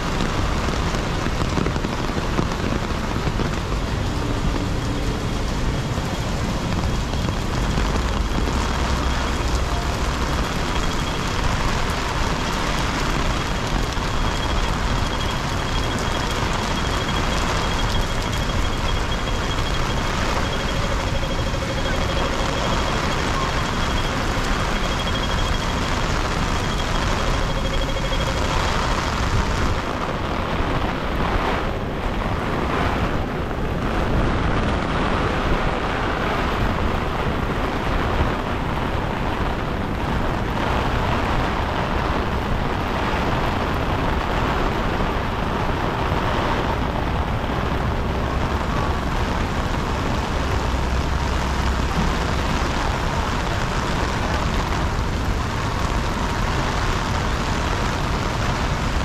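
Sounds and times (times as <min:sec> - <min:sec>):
heavy rain on pavement: 0:00.0 - 0:59.0
low street rumble: 0:00.0 - 0:59.0.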